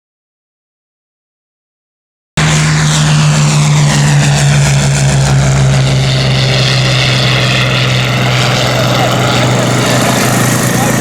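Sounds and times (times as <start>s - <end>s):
piston aircraft engine running: 2.4s - 11.0s.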